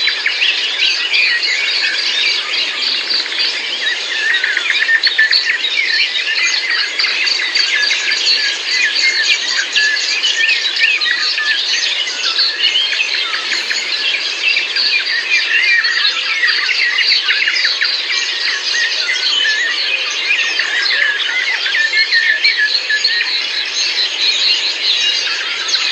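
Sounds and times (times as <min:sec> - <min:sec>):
many small birds chirping: 0:00.0 - 0:25.9
steady outdoor hiss: 0:00.1 - 0:19.2.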